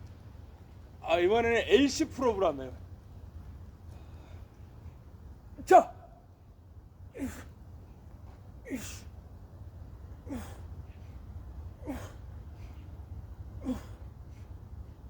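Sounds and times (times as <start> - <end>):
low steady hum: 0.0 - 15.0
man grunting exhalations: 13.6 - 14.0.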